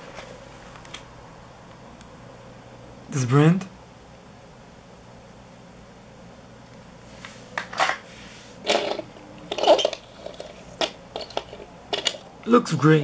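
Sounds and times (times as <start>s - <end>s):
object rustling clatters: 7.2s - 12.3s.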